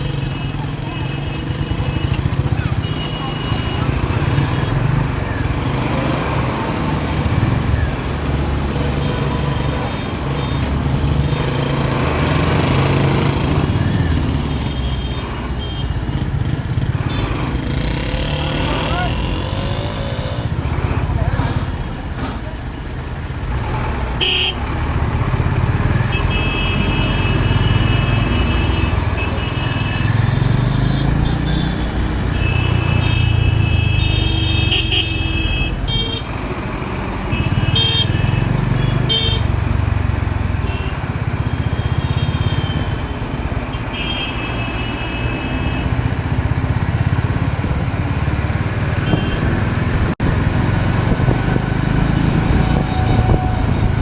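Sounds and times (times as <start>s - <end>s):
vehicle horns honking: 0.0s - 4.8s, 24.2s - 24.6s, 26.0s - 36.3s, 37.3s - 39.5s, 40.6s - 43.1s, 43.7s - 46.0s, 49.0s - 49.6s
traffic: 0.0s - 54.0s.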